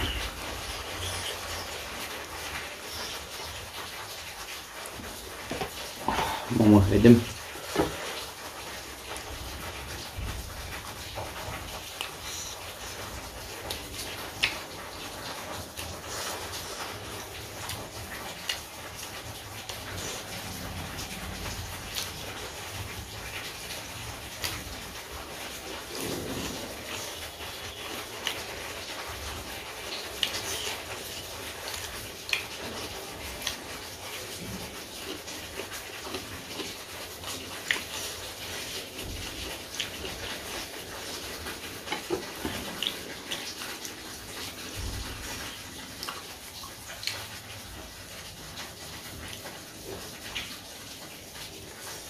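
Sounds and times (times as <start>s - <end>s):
chewing and mouth smacks: 13.5s - 22.6s, 29.8s - 39.0s, 39.6s - 44.8s, 45.4s - 47.4s.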